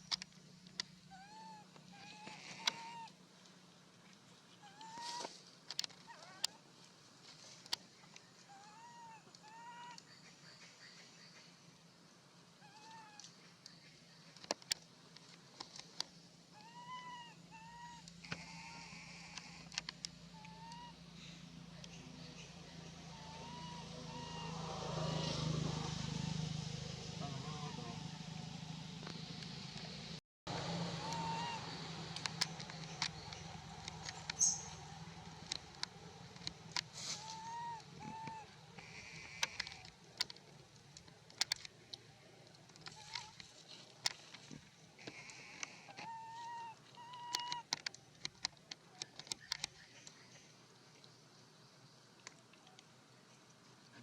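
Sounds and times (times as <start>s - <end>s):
faint steady hum: 0.0s - 54.0s
baby monkey crying calls: 1.1s - 3.1s, 16.6s - 19.7s, 23.1s - 25.5s, 30.9s - 31.7s, 37.1s - 39.2s.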